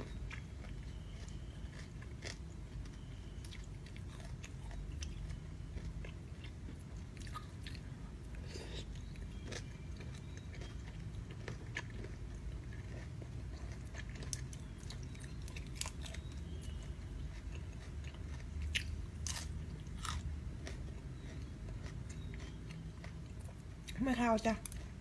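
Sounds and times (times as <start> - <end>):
person chewing: 0.0 - 24.0
low steady hum: 0.0 - 25.0.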